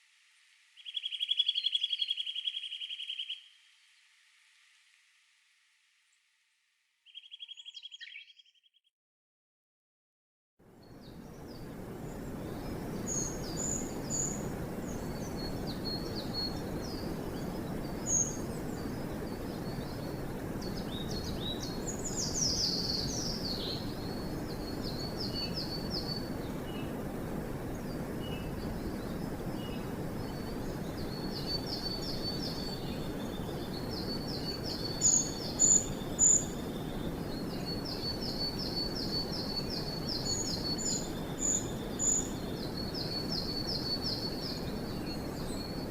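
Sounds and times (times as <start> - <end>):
songbirds singing: 0.8 - 3.6, 7.0 - 8.7, 10.7 - 45.9
low rushing background noise: 10.6 - 45.9.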